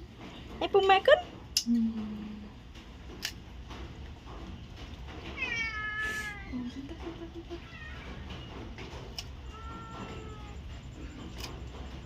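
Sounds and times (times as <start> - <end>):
cat meowing: 5.4 - 6.6, 7.6 - 8.3, 9.4 - 10.7.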